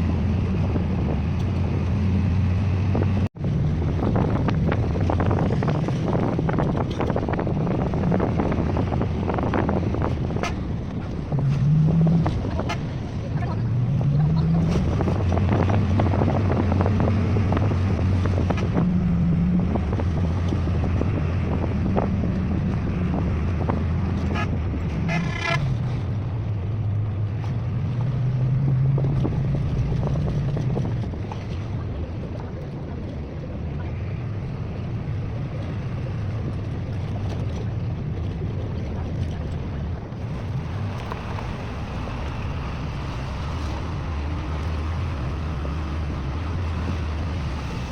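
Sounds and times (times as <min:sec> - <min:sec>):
bus engine hum: 0:00.0 - 0:47.9
road and wind noise: 0:00.0 - 0:47.9
vehicle horn: 0:10.2 - 0:10.8, 0:12.2 - 0:13.2, 0:24.2 - 0:25.8.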